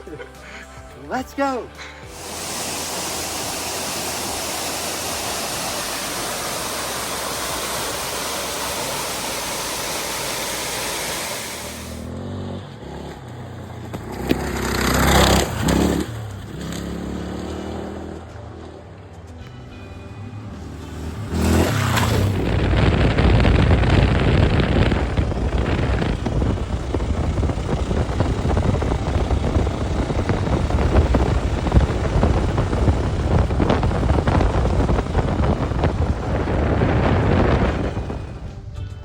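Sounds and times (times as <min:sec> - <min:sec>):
dirt bike engine running: 0:02.0 - 0:18.4, 0:20.6 - 0:38.7
wind rushing over microphone: 0:21.3 - 0:38.8.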